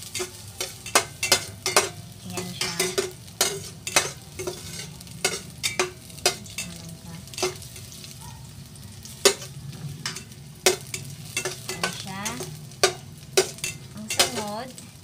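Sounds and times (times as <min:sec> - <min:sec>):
utensil scraping a pot: 0:00.0 - 0:08.1
garlic sizzling in oil: 0:00.0 - 0:15.0.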